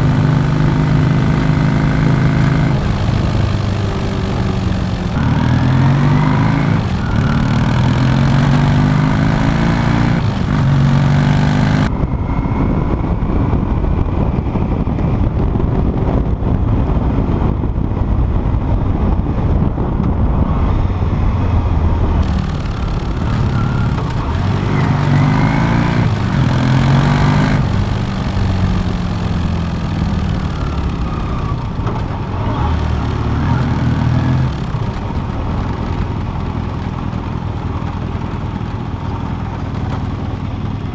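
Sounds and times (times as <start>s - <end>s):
motorcycle engine revving through gears: 0.0s - 11.9s, 22.2s - 40.9s.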